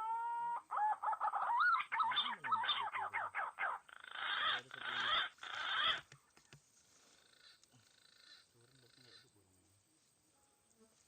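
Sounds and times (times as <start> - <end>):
bird rasping notes: 1.4 - 6.2.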